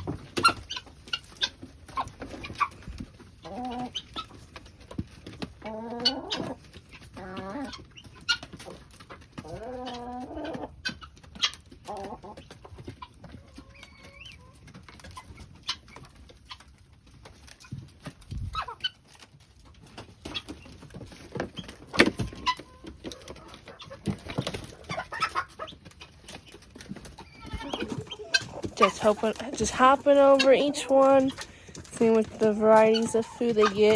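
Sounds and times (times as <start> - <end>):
chickens clucking: 0.0 - 33.9
hen calling: 27.2 - 33.9.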